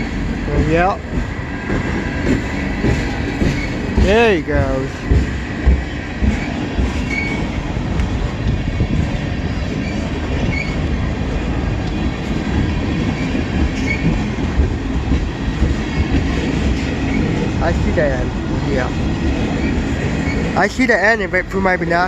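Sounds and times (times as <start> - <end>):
freight train rumbling on rails: 0.0 - 22.0
wheel squeaks: 6.3 - 7.5, 13.2 - 14.2.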